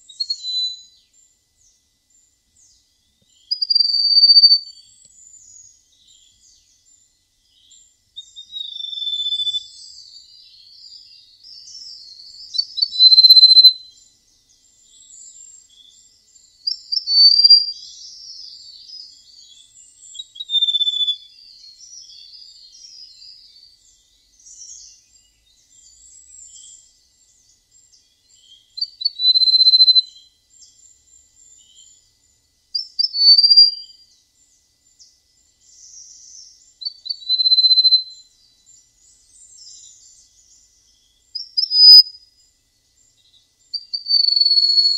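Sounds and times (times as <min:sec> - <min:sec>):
songbird whistling: 0:00.0 - 0:01.0, 0:03.3 - 0:06.2, 0:07.6 - 0:14.0, 0:16.7 - 0:23.5, 0:28.3 - 0:30.3, 0:32.8 - 0:34.0, 0:35.9 - 0:38.2, 0:41.3 - 0:42.2, 0:43.7 - 0:44.9
high chirps and twitters: 0:41.4 - 0:42.0.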